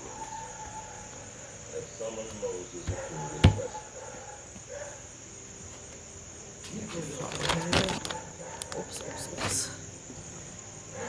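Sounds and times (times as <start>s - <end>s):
crickets chirping: 0.0s - 11.0s
faint distant voices: 0.0s - 11.0s
sharp thump: 2.9s - 3.7s.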